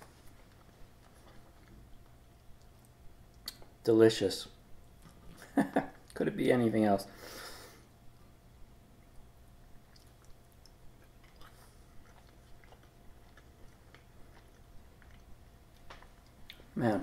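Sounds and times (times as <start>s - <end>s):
faint chewing: 0.0s - 3.8s, 4.8s - 6.2s, 8.9s - 16.8s
soft mouth clicks: 2.6s - 3.7s
breathy hiss: 7.0s - 8.0s.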